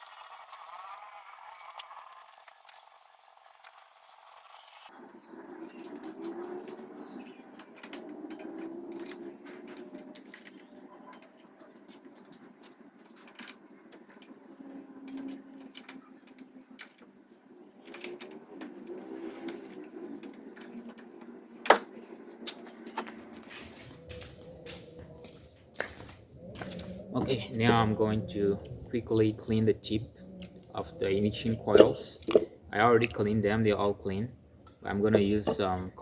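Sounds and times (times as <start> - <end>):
metal tools clinking: 5.1 - 14.3.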